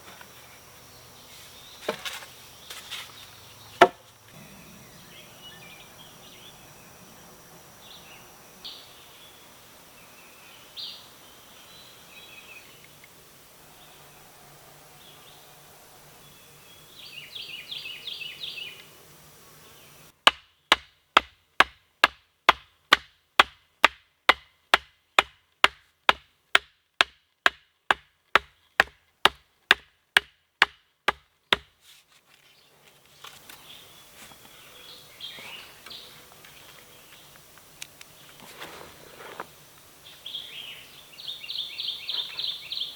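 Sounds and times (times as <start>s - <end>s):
tool striking wood: 3.8s - 4.0s, 20.2s - 31.7s.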